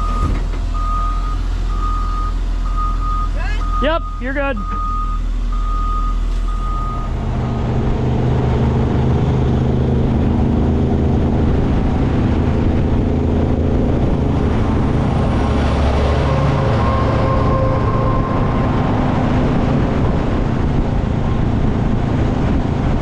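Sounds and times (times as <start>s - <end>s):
reversing alarm beeping: 0.0s - 7.2s, 15.4s - 18.9s
large vehicle engine running: 0.0s - 23.0s.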